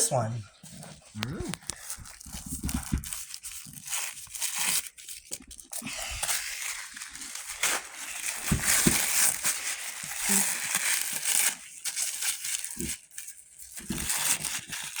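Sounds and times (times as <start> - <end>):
wrapping paper tearing and crumpling: 1.2 - 15.0.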